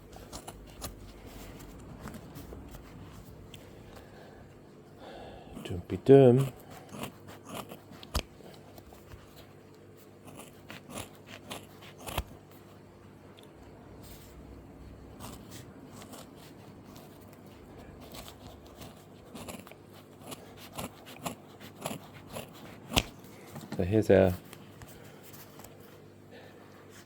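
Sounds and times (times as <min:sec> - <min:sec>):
clicks crinkles and scrapes of handling: 0:00.0 - 0:02.9, 0:06.7 - 0:12.8, 0:15.2 - 0:23.8, 0:24.4 - 0:26.0
low steady hum: 0:00.0 - 0:27.0.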